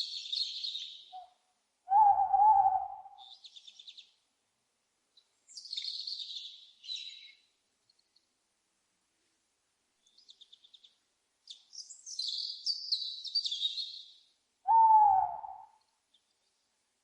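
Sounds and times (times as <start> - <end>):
songbirds chirping: 0.0 - 8.7, 9.4 - 17.0
owl hoot: 1.9 - 3.3, 14.7 - 15.8.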